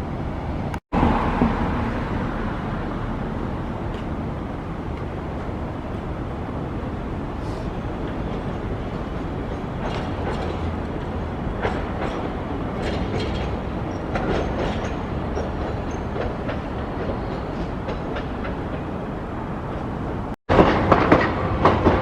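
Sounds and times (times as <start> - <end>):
streetcar rumbling: 0.0 - 22.0
wheel clacks and knocks: 9.4 - 18.9, 20.5 - 22.0.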